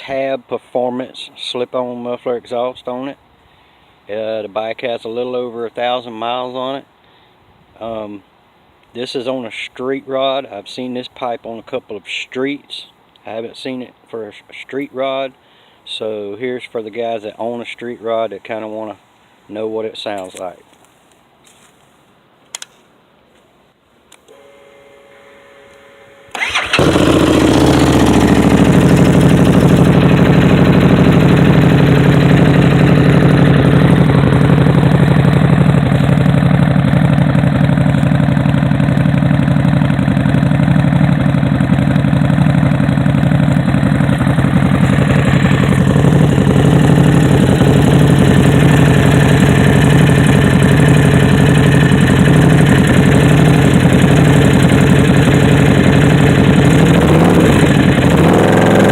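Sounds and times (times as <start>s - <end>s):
motorcycle engine starting and idling: 24.3s - 58.9s.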